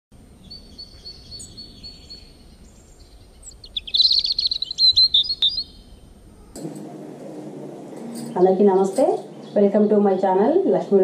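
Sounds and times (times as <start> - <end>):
birds singing chirps and trills: 0.2 - 6.6, 8.2 - 11.0
faint low hiss: 0.2 - 11.0.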